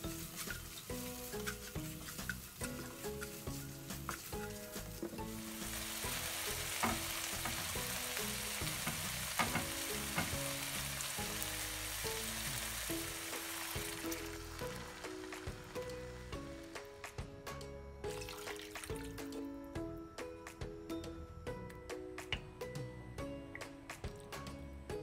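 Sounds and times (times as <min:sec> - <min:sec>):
food sizzling in a wok: 0:00.0 - 0:19.3
soft background music: 0:00.0 - 0:25.0
spatula knocking on a wok: 0:06.4 - 0:08.0, 0:08.6 - 0:10.7.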